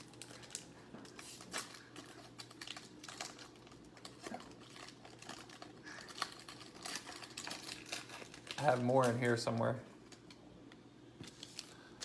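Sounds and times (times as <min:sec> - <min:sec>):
cards and packaging clicking: 0:00.0 - 0:09.3.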